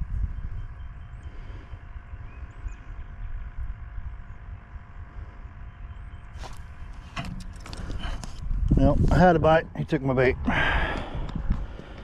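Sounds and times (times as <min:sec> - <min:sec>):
low uneven rumble: 0:00.0 - 0:12.0
short rustle or knock: 0:06.4 - 0:08.4.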